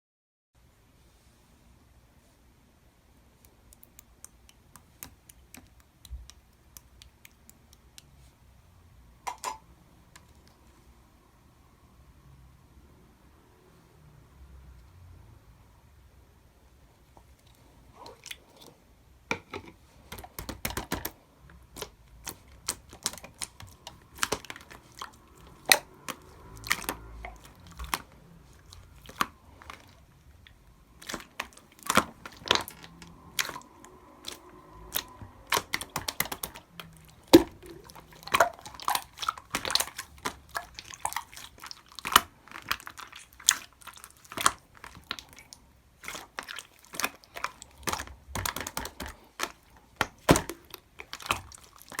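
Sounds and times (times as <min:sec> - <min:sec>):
slime clicking and popping: 0:03.4 - 0:08.1, 0:20.1 - 0:52.0.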